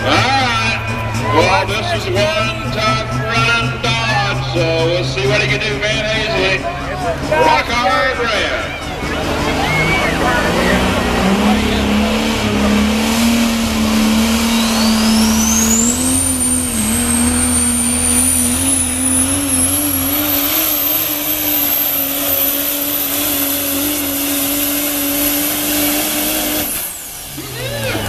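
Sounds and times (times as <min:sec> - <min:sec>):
truck engine drone: 0:00.0 - 0:28.0
turbocharger whistle: 0:07.4 - 0:28.0.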